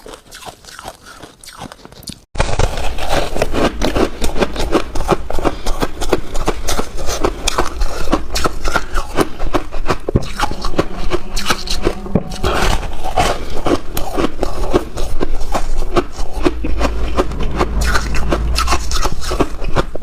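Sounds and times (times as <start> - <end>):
frost crunching and crackling: 0.0 - 9.4.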